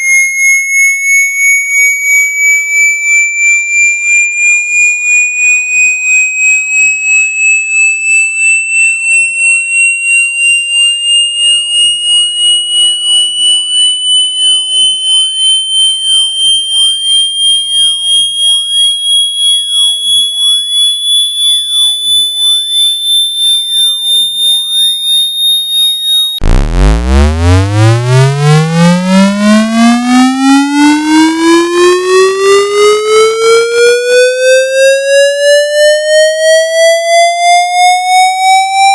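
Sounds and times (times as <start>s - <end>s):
high pulsing test tone: 0.0s - 38.9s
buzzy low tone sweeping upward: 26.3s - 34.6s.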